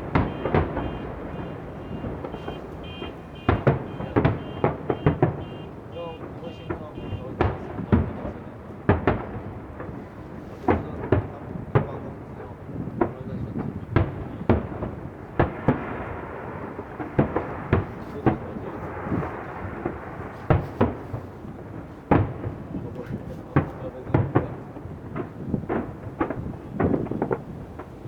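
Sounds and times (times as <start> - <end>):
fireworks crackling hiss: 0.0 - 5.5, 15.5 - 28.0
fireworks booming: 0.0 - 28.0.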